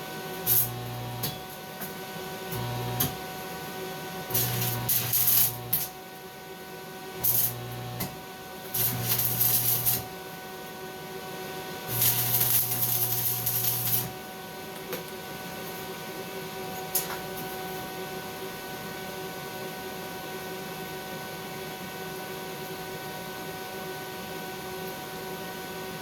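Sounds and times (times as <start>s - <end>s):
welding arc crackling: 0.3s - 1.6s, 2.5s - 3.3s, 4.3s - 6.0s, 7.2s - 10.2s, 11.9s - 14.2s
machine hum: 2.5s - 3.2s.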